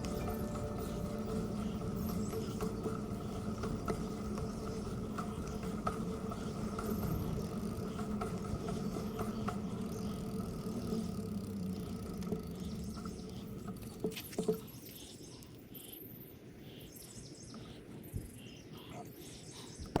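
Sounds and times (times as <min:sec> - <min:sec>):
bicycle clicking: 0:00.0 - 0:15.0
bicycle rolling on a trail: 0:00.0 - 0:15.0.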